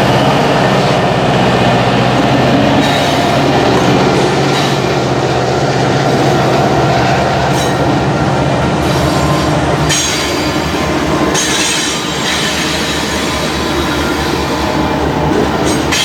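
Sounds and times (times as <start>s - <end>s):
train rumbling on track: 0.0s - 16.0s
wheel squeal: 0.4s - 5.1s.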